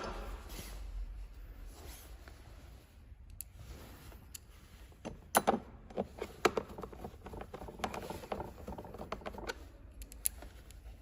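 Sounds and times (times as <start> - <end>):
light clicks of small parts: 3.2 - 3.6, 9.5 - 11.0.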